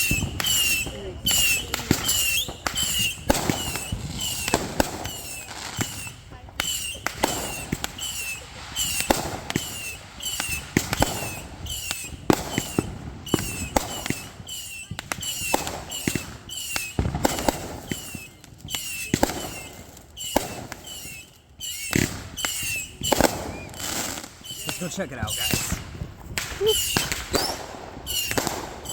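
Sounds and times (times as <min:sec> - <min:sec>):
fireworks bangs and crackles: 0:00.0 - 0:28.9
high falling whistle-like chirp: 0:24.4 - 0:25.8, 0:28.1 - 0:28.9.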